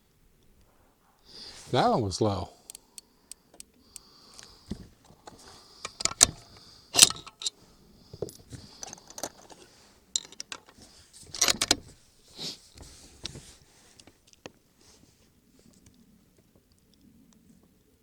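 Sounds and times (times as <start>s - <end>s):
metallic rifle bolt clicks and rattles: 2.6s - 3.7s, 7.0s - 7.6s, 10.2s - 11.8s.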